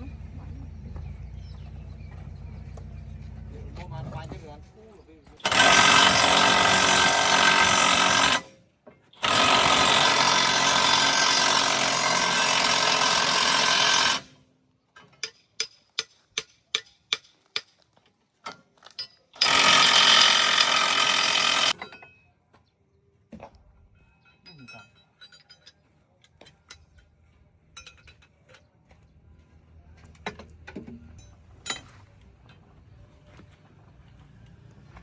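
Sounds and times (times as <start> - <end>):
loud machinery noise: 5.4 - 8.4, 9.2 - 14.3, 19.4 - 21.8.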